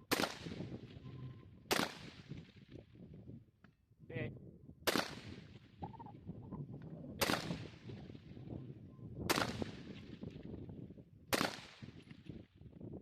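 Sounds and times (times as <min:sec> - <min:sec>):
rifle shots echoing: 0:00.0 - 0:00.7, 0:01.7 - 0:02.3, 0:04.9 - 0:05.4, 0:07.2 - 0:08.0, 0:09.3 - 0:10.0, 0:11.3 - 0:11.9.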